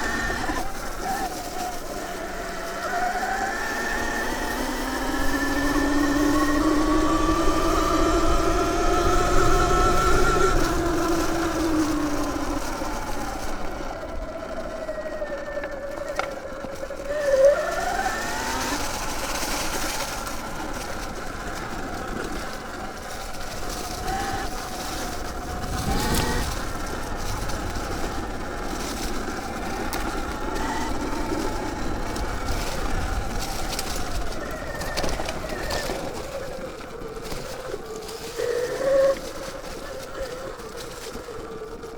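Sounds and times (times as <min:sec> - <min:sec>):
electric dirt bike motor whining: 0:00.0 - 0:41.9.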